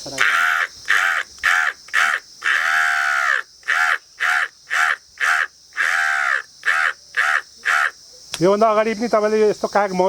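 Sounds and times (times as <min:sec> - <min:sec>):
man imitating crow caws: 0:00.1 - 0:08.0.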